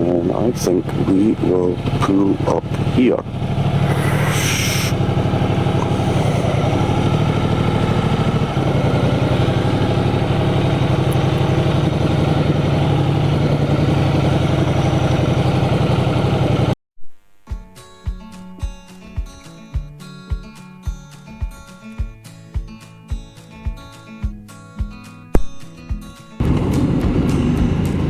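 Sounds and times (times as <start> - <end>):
acoustic guitar music: 0.0 - 14.5, 17.4 - 28.0
motorcycle engine idling: 0.0 - 16.8
short hiss: 3.8 - 5.0.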